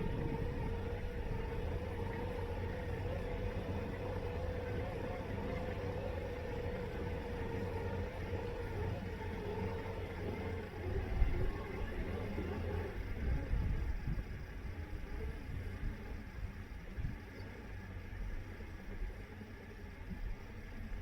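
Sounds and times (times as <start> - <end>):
robotic lawn mower motors whining: 0.0 - 16.9.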